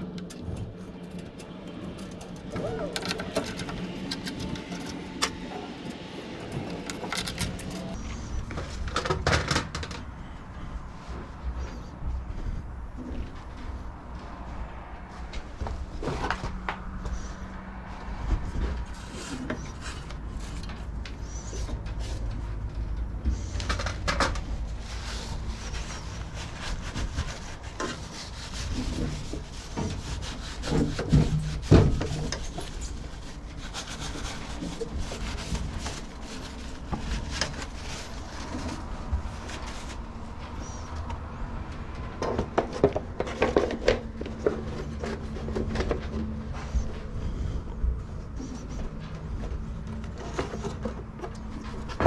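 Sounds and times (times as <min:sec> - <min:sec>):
tools clicking and knocking on parts: 0:00.0 - 0:08.0.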